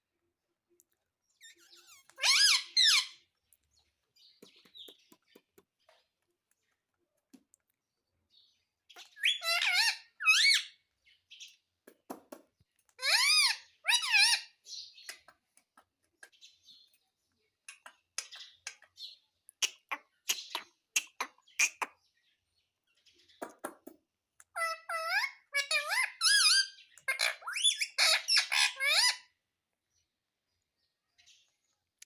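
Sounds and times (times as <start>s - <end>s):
parakeet calling: 1.4s - 3.3s, 9.0s - 10.8s, 13.0s - 15.3s, 24.5s - 29.4s
bird clicks and chirps: 3.3s - 7.8s, 14.8s - 22.0s, 23.4s - 24.6s, 26.8s - 27.9s.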